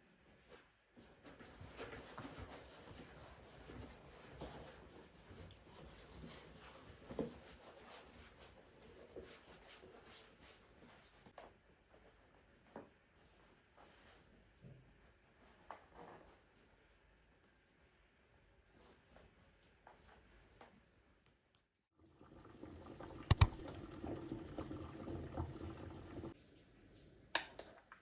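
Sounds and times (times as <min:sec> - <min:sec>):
light clicks: 0:23.3 - 0:23.6.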